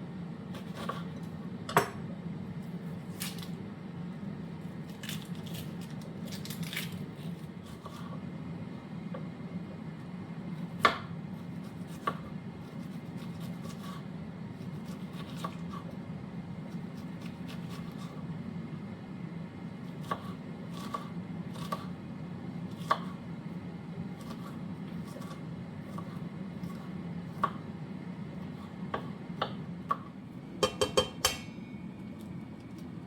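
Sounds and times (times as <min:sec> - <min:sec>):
steady low hum: 0:00.0 - 0:33.0
knife cutting on cutting board: 0:00.5 - 0:01.1.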